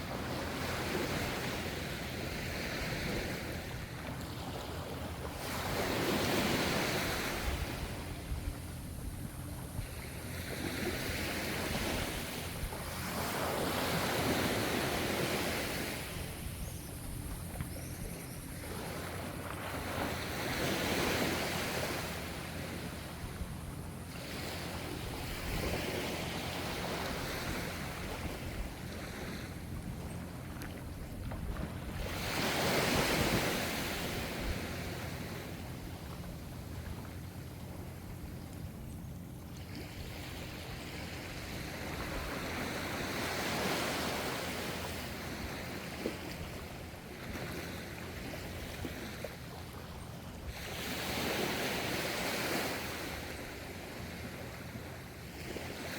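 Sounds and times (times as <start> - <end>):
ocean waves washing in: 0.0 - 17.7.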